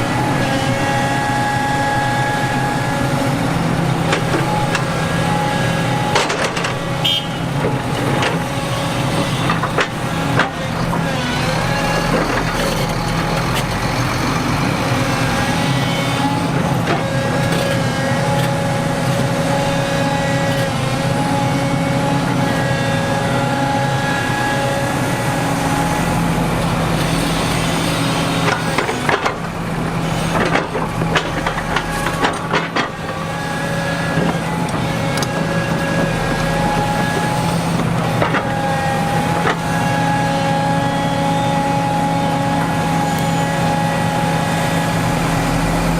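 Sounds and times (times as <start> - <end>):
heavy diesel machinery running: 0.0 - 45.9
metal clanks and knocks: 6.1 - 6.9, 30.3 - 33.2.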